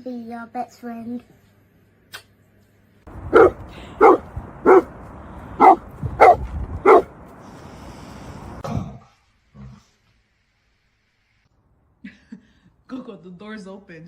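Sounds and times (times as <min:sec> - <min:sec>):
dog barking: 0:03.2 - 0:05.0, 0:05.6 - 0:07.1.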